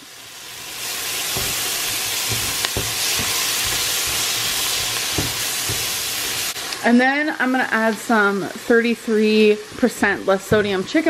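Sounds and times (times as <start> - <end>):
vegetables sizzling in butter: 0.0 - 11.0
spatula knocking against pot: 1.3 - 6.0.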